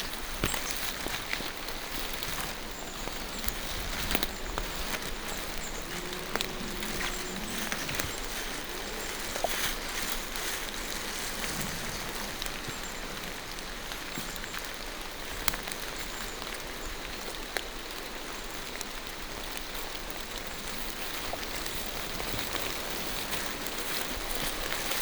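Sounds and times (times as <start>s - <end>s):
rain falling through trees: 0.0s - 25.0s.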